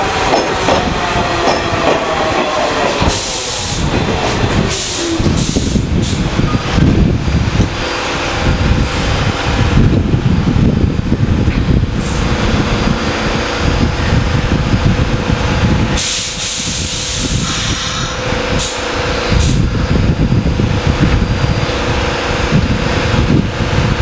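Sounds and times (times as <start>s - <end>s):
subway train rumble: 0.0s - 24.0s
air brake hiss: 3.1s - 3.9s, 4.7s - 6.3s, 16.0s - 19.6s.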